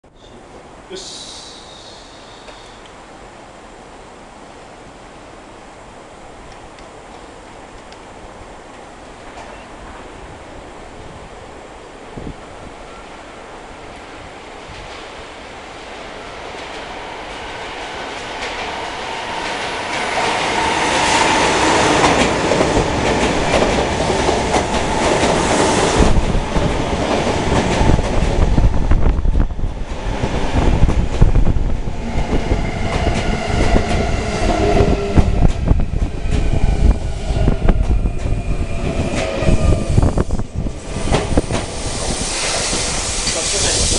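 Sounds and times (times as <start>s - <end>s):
electric train rumbling past: 0.4s - 43.9s
train whining tones: 29.9s - 43.9s.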